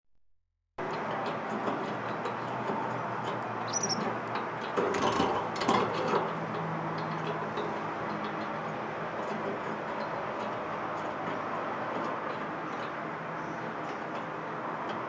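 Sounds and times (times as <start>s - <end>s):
bird chirp: 3.7s - 4.1s.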